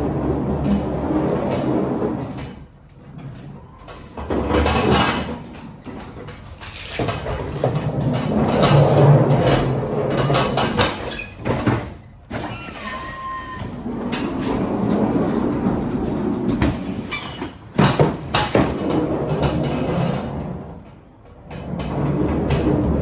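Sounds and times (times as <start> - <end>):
pallet jack rolling and rattling: 0.0 - 23.0
metal clatter and knocks: 4.1 - 20.3
brief squeak: 11.1 - 13.7, 17.0 - 17.6.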